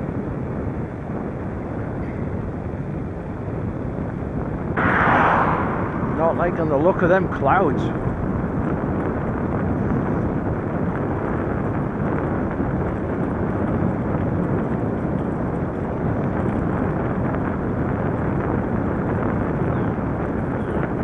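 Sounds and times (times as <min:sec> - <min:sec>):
wind rush: 0:01.0 - 0:21.0
rolling road noise: 0:04.8 - 0:11.2.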